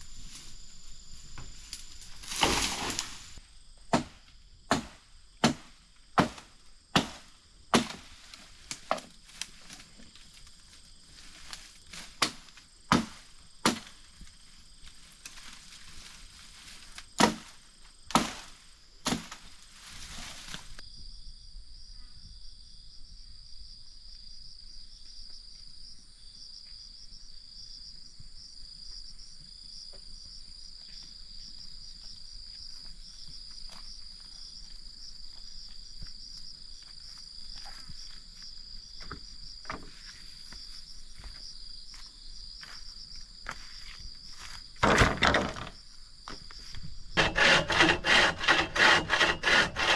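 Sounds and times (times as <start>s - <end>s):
insect chorus: 0.0s - 49.9s
chopping strikes on wood: 3.9s - 8.1s, 12.2s - 14.0s, 17.2s - 17.5s, 18.1s - 19.4s.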